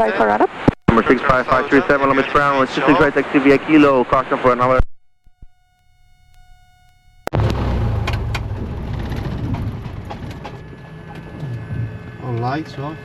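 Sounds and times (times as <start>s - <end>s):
faint steady electronic tones: 0.0s - 7.4s
small plane engine rumble: 7.2s - 13.0s.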